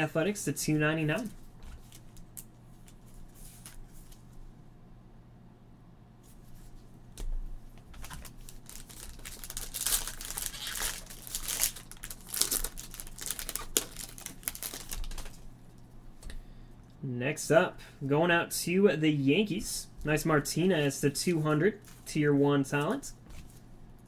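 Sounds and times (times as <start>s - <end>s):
card pack wrapper crinkling: 7.9s - 15.5s.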